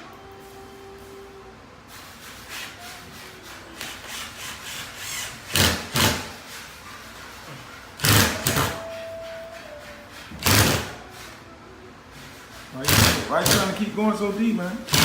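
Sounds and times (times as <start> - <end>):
hand tool rasping strokes: 2.2 - 11.3, 12.3 - 14.3.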